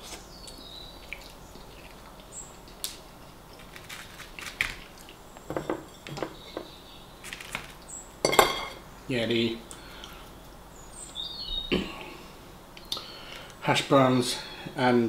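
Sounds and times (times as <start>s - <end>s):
person chewing chips: 1.0s - 5.2s.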